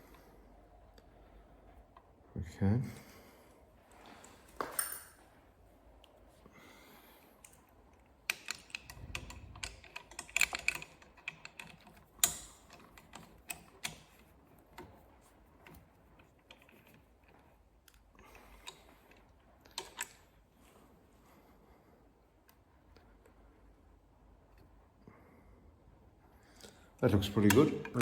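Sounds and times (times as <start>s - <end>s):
clicks and knocks of metal handling: 4.2s - 5.2s, 8.2s - 15.0s, 18.6s - 20.3s, 27.2s - 28.0s.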